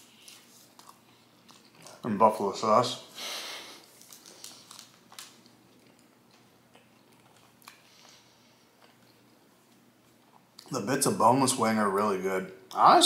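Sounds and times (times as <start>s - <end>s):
quiet chewing: 0.1s - 2.0s, 3.7s - 10.7s.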